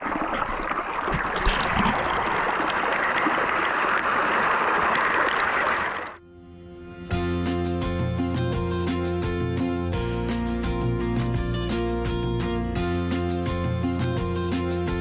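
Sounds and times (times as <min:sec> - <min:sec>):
river water rushing: 0:01.6 - 0:06.2.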